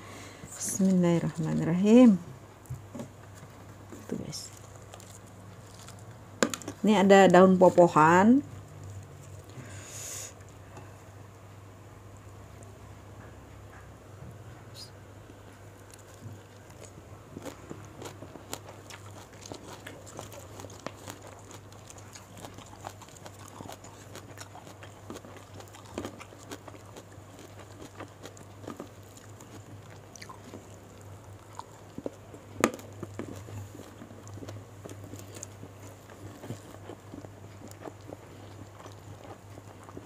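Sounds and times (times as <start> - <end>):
low steady hum: 0.0 - 40.0
chewing and crunching: 2.7 - 9.8, 15.4 - 40.0.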